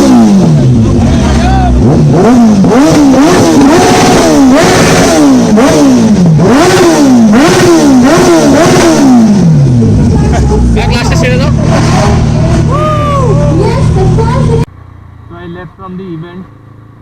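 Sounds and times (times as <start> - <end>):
engine revving in throttle blips: 0.0 - 17.0.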